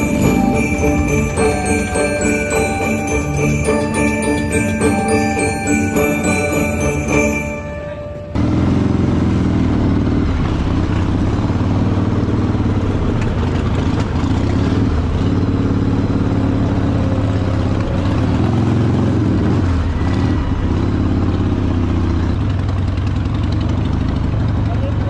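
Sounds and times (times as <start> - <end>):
motorcycle engines running: 8.4 - 25.0.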